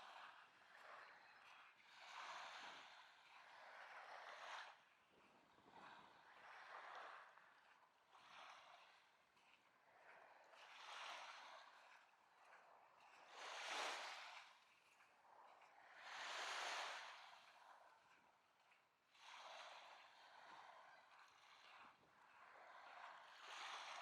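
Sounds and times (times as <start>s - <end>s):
small waves washing onto beach: 0.0s - 24.0s.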